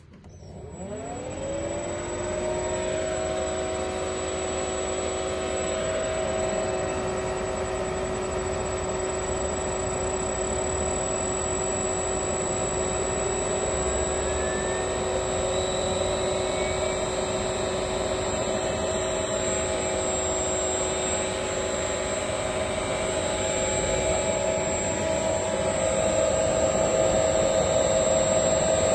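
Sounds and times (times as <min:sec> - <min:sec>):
electric motor whine: 0:00.3 - 0:28.9.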